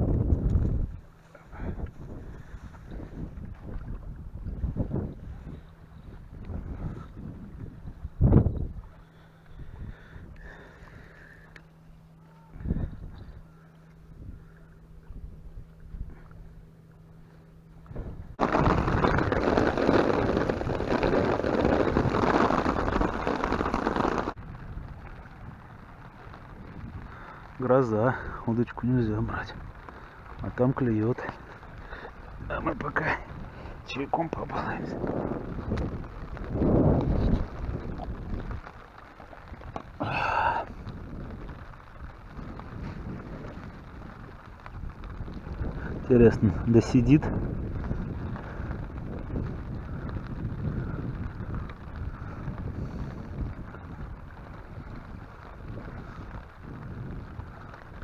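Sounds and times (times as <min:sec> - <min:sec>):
wind: 0:00.0 - 0:58.0
heavy rain pouring: 0:18.4 - 0:58.0.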